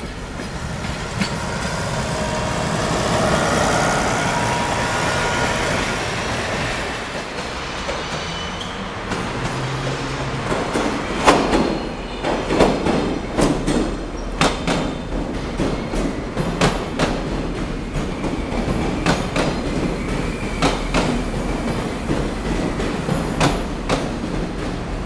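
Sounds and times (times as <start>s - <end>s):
train rumbling on rails: 0.0s - 25.0s
wheels clacking on track: 0.0s - 25.0s.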